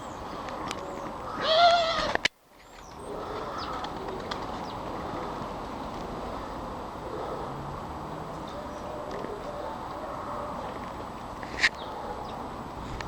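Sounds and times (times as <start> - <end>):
drawn-out animal call: 1.3 - 2.3.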